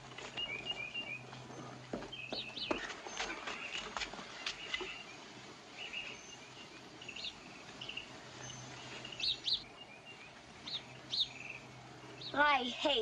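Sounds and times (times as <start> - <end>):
film soundtrack hiss: 0.0 - 13.0
small bird chirping: 0.3 - 12.7.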